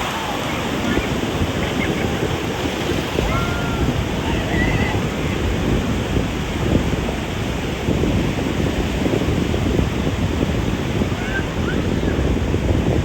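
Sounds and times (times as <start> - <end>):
ocean surf breaking on beach: 0.0 - 13.0.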